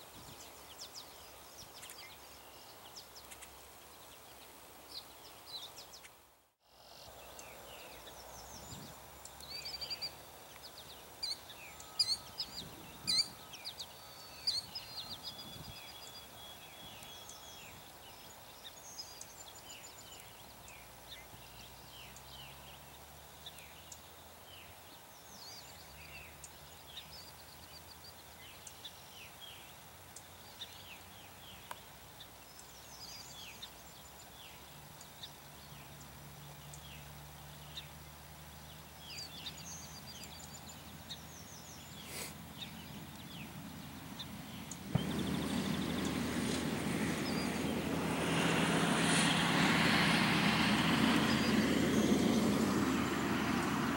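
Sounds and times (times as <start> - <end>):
birds chirping: 7.0 - 53.9
distant aircraft drone: 35.0 - 53.9
loud airplane engine: 44.9 - 53.9.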